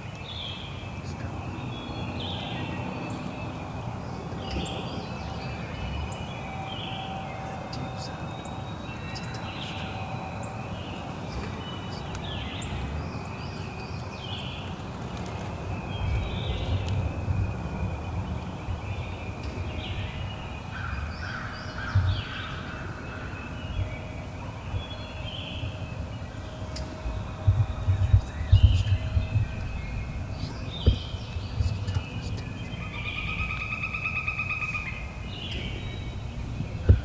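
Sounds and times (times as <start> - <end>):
other birds calling: 0.0 - 37.0
low thumps: 26.6 - 32.8, 35.1 - 37.0
wild turkey calls: 30.3 - 37.0.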